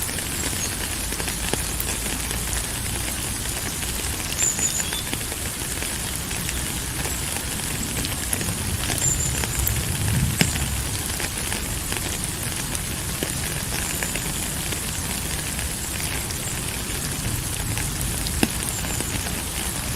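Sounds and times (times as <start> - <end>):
rain pattering: 0.0 - 19.9.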